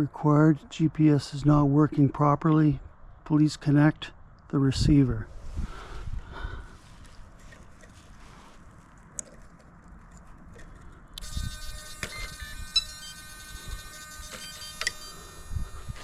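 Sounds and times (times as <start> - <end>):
electronic whine: 11.2 - 16.0.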